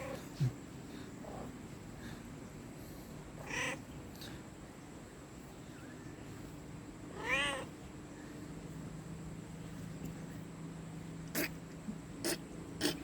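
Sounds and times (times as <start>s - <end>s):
cat meowing: 3.4s - 3.8s, 7.2s - 7.7s.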